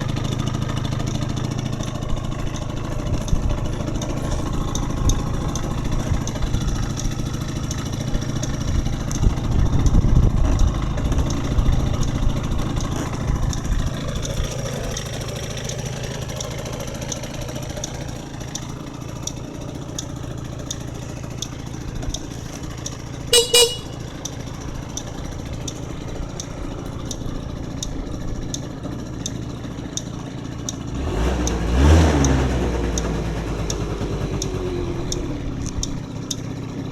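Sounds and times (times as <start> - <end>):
two-stroke scooter engine revving: 0.0 - 36.9
scooter horn beep: 23.3 - 24.2.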